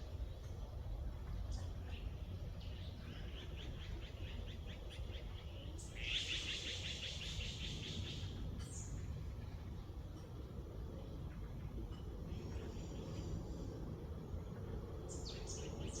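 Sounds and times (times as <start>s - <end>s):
low background rumble: 0.0s - 16.0s
songbird trilling: 3.0s - 9.0s.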